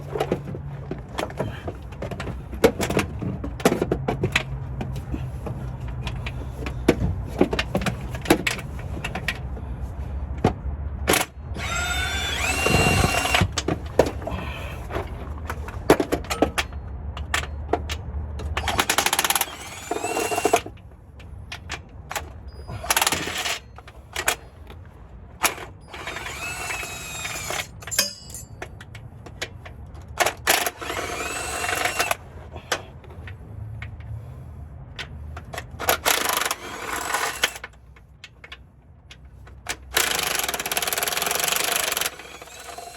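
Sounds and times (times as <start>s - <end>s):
power tool motor whining: 11.6s - 13.6s, 18.6s - 20.6s, 25.9s - 27.9s, 30.6s - 32.2s, 36.1s - 37.6s, 40.0s - 42.9s
clicks and metal knocks: 14.9s - 24.4s, 27.4s - 30.7s.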